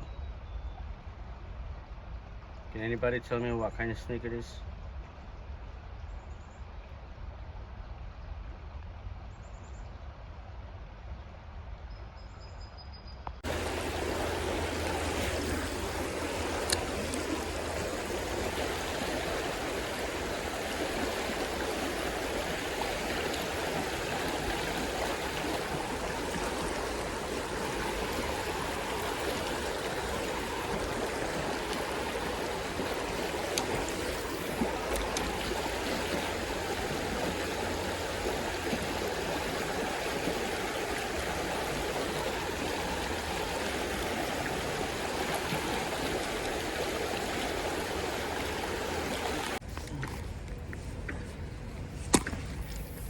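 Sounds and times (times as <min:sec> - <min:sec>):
creek water rushing: 0:13.4 - 0:53.0
faint clicks: 0:16.5 - 0:17.2.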